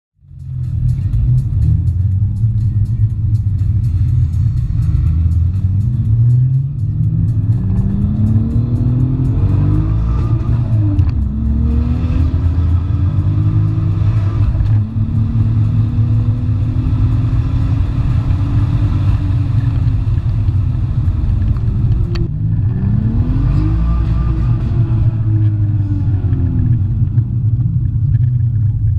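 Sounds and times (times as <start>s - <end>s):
heavy-bass music: 0.2s - 28.9s
car engine revving hard: 4.1s - 27.2s.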